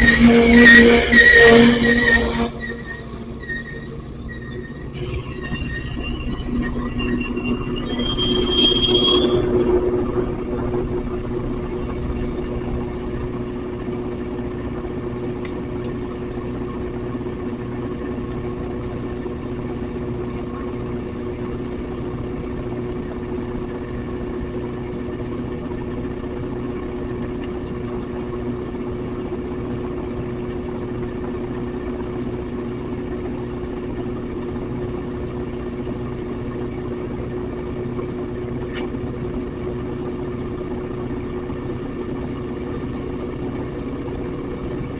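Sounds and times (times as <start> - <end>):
high-pitched squeal: 0.0 - 13.5
train running hum: 0.0 - 44.9.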